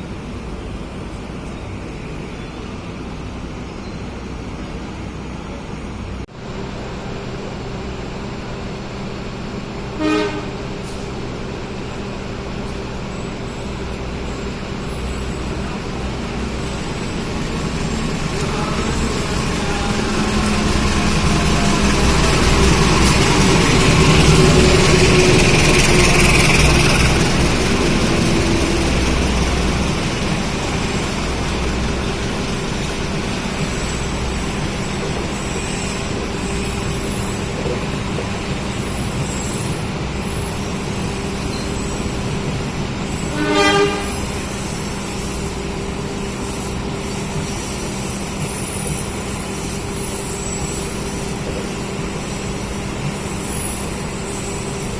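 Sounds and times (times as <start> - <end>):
train rumbling: 0.0 - 54.9
train horn toot: 10.0 - 10.7, 43.2 - 44.5.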